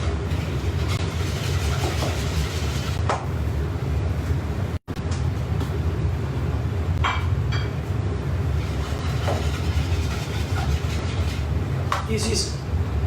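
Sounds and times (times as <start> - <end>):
kitchen machinery rumbling: 0.0 - 3.1, 6.9 - 12.5.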